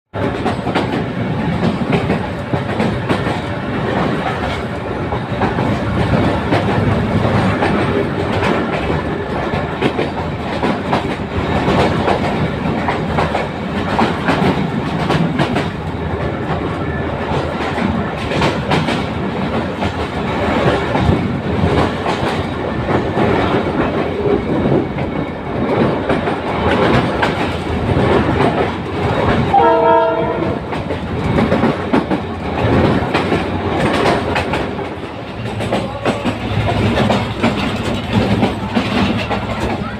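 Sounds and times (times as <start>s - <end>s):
train wheels clattering over rail joints: 0.1s - 39.9s
diesel locomotive running: 0.2s - 39.9s
train horn: 29.5s - 30.7s.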